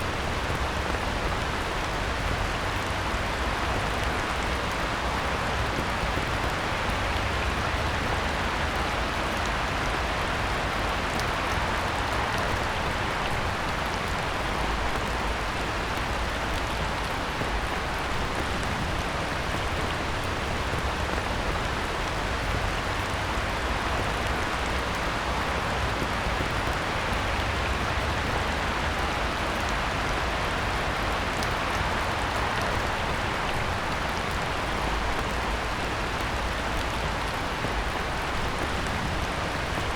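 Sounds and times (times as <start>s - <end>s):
heavy rain on a pond: 0.0s - 39.9s.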